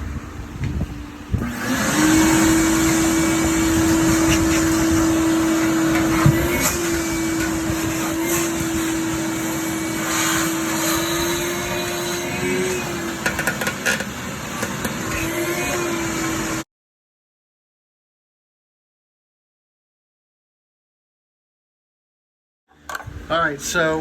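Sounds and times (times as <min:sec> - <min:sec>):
vacuum cleaner motor humming: 0:00.0 - 0:16.6.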